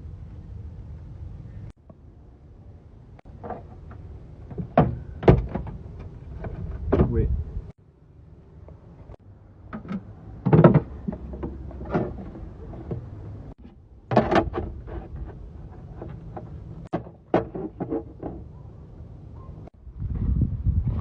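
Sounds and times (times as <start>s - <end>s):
knocks and rattles of boat work: 3.2s - 7.3s, 9.6s - 18.7s.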